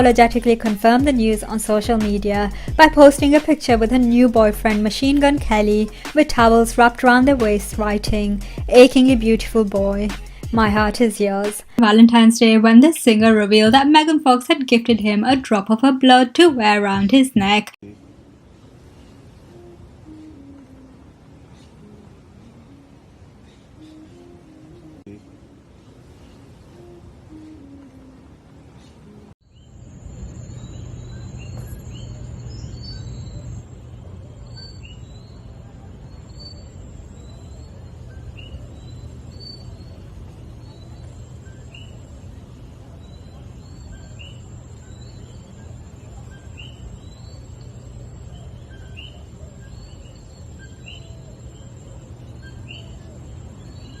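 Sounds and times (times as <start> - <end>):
faint high-pitched whine: 17.8 - 54.0.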